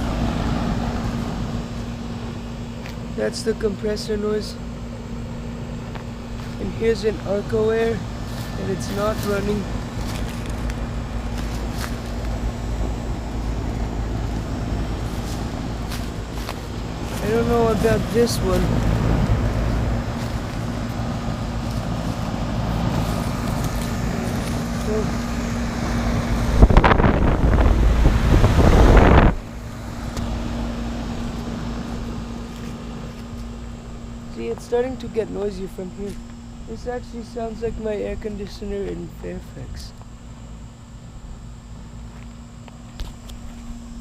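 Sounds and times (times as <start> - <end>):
compressor low tone: 0.0 - 42.8
heat pump unit humming: 0.0 - 44.0
wind buffeting microphone: 6.5 - 31.4.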